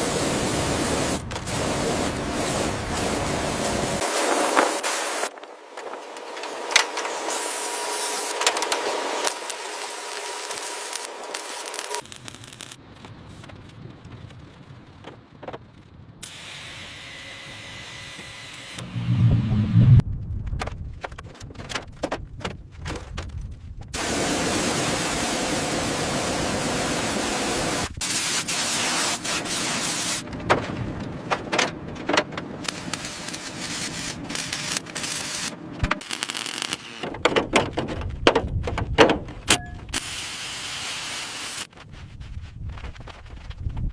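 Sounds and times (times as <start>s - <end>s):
steady hiss: 0.0s - 5.4s, 7.2s - 13.3s, 24.0s - 30.2s, 39.8s - 41.7s.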